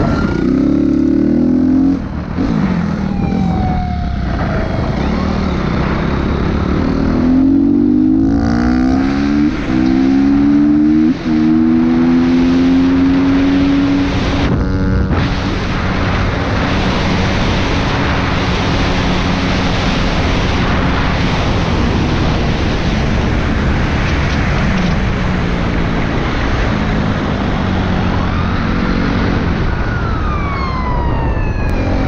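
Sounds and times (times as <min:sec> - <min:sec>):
police siren wailing: 0:00.0 - 0:00.8, 0:02.9 - 0:08.6, 0:27.7 - 0:32.0
vehicle engine hum: 0:00.0 - 0:32.0
wind or road noise roar: 0:00.0 - 0:32.0.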